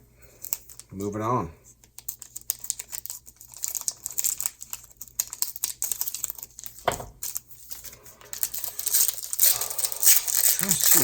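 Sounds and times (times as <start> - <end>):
card stock and foil rustling: 0.3 - 11.0
trading cards shuffled by hand: 1.8 - 11.0.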